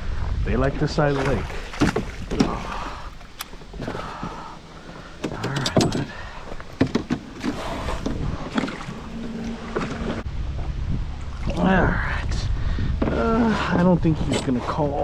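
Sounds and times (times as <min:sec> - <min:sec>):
fishing gear clicks and knocks: 0:05.2 - 0:08.8.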